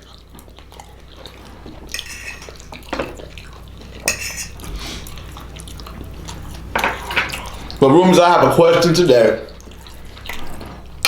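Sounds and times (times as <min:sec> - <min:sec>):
cutlery clinking and scraping on plates: 0:01.9 - 0:03.2, 0:04.0 - 0:05.1, 0:06.7 - 0:07.6
sharp cutlery taps: 0:04.1 - 0:04.6.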